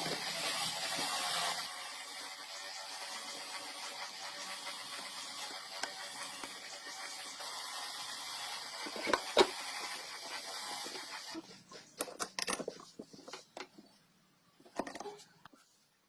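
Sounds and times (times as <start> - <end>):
tools clicking and tapping: 11.9 - 13.8.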